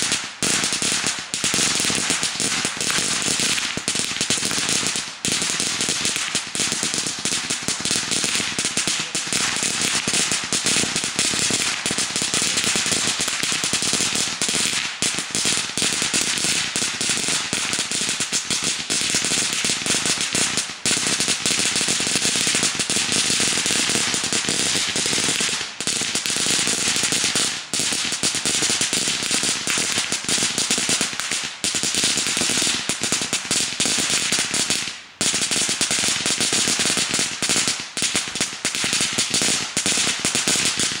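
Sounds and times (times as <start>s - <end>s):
firecrackers popping: 0.0s - 41.0s.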